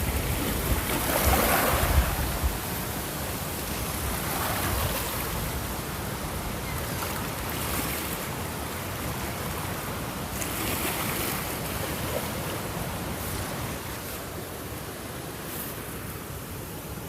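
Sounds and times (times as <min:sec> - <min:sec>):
ocean waves washing ashore: 0:00.0 - 0:17.0.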